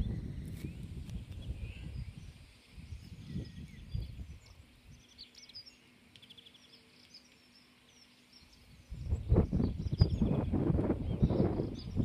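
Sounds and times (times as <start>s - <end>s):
wind rumbling on microphone: 0.0s - 5.1s, 8.6s - 12.0s
small birds chirping: 0.0s - 12.0s.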